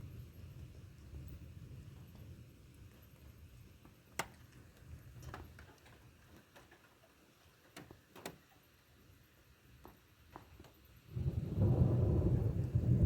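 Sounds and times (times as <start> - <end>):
distant thunder rumble: 11.1 - 13.0.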